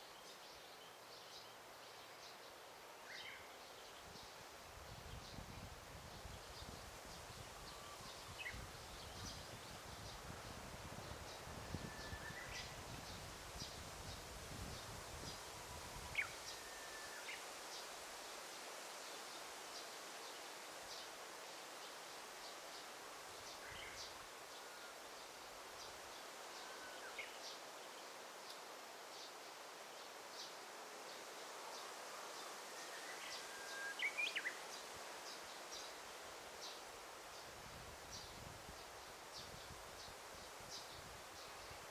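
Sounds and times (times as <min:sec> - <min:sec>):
steady soft hiss: 0:00.0 - 0:41.9
thin whistled bird notes: 0:11.7 - 0:12.8, 0:16.0 - 0:17.4, 0:32.7 - 0:34.6
whistled bird notes: 0:32.8 - 0:34.6.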